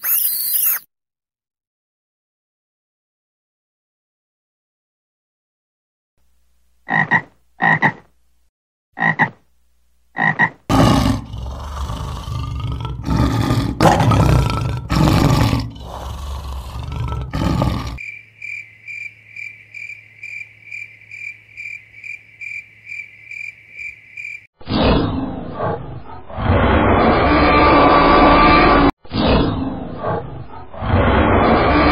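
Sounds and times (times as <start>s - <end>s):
frog croaking: 6.9s - 8.1s, 9.0s - 9.4s, 10.2s - 13.2s, 15.6s - 24.5s
lion roaring: 10.7s - 18.0s.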